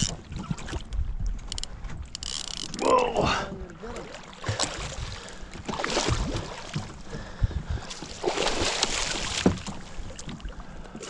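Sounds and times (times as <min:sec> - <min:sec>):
water rushing around kayak: 0:00.0 - 0:11.0
knocks against kayak hull: 0:09.3 - 0:09.9.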